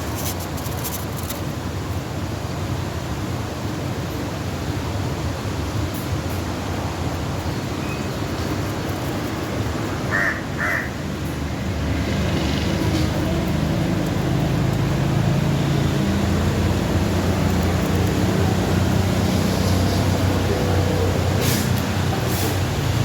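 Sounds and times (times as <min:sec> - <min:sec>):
bird calls: 0:10.0 - 0:11.0.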